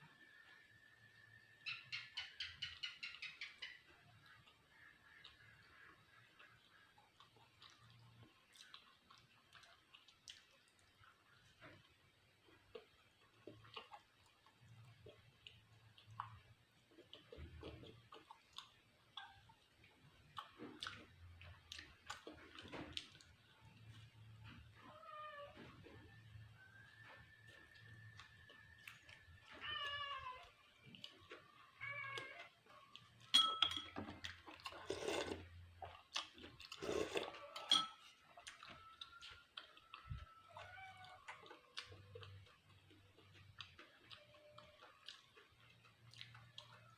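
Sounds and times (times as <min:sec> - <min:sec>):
chewing: 0:00.1 - 0:46.9
eating noise: 0:02.0 - 0:24.8, 0:34.0 - 0:46.9
utensils clinking against dishes: 0:33.3 - 0:34.1, 0:37.5 - 0:38.2.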